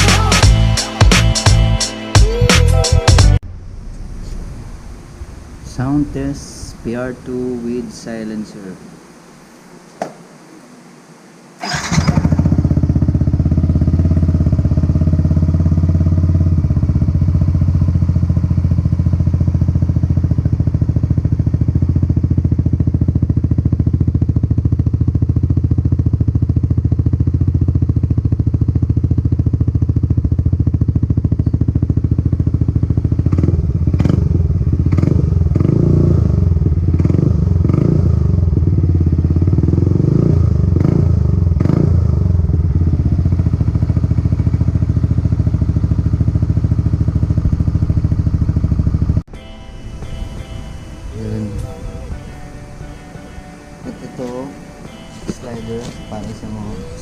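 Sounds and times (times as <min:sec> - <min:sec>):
motorcycle engine idling: 0:11.6 - 0:49.4, 0:50.0 - 0:57.0.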